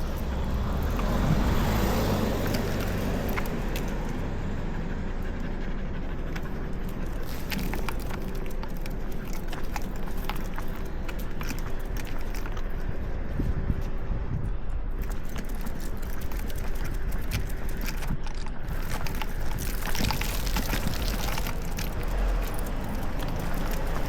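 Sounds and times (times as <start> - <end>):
car passing: 0.0 - 13.4
low traffic rumble: 0.0 - 24.0.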